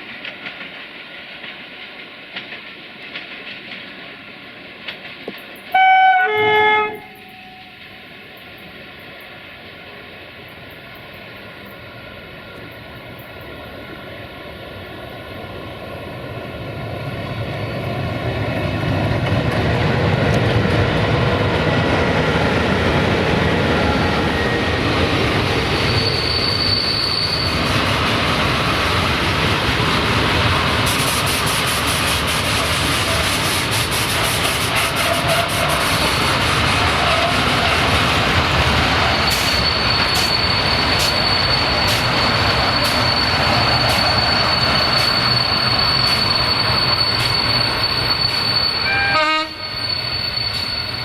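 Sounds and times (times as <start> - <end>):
train wheels on rails: 0.0 - 51.0
high wheel squeal: 23.8 - 27.7, 38.8 - 51.0.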